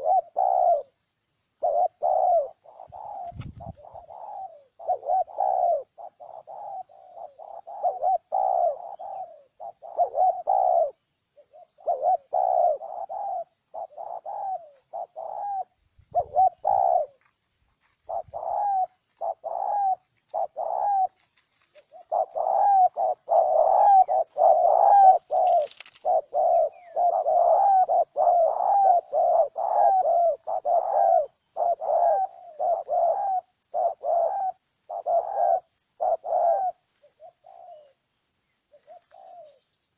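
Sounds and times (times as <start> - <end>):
dove cooing: 0.0 - 38.0, 38.7 - 39.8.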